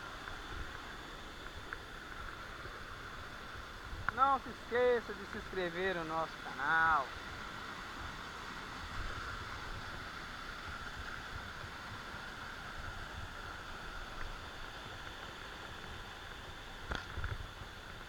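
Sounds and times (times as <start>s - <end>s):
waterfall rushing: 1.8s - 16.2s.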